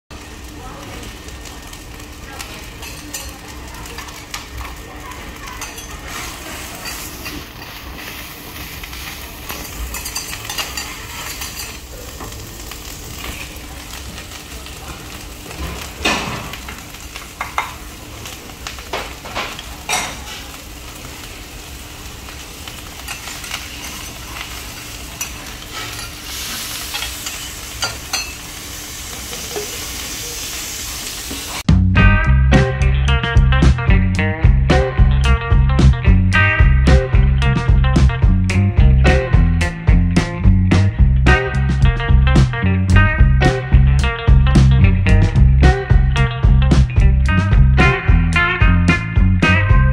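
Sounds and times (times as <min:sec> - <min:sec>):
rice sizzling on a griddle: 0:00.1 - 0:31.7
spatula scraping a hot plate: 0:05.6 - 0:11.8, 0:23.0 - 0:28.4
music: 0:31.7 - 0:49.9.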